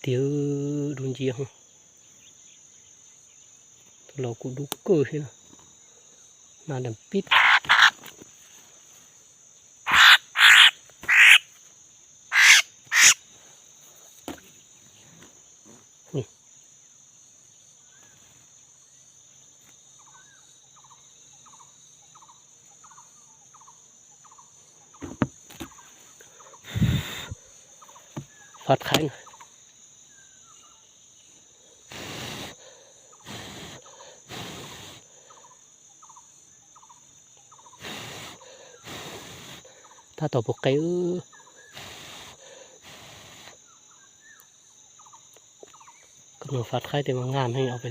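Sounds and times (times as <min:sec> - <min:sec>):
short insect chirps: 0:00.0 - 0:47.9
birds giving harsh rasping calls: 0:07.2 - 0:08.2, 0:09.8 - 0:11.5, 0:12.3 - 0:13.2
high-pitched insect drone: 0:09.8 - 0:47.9.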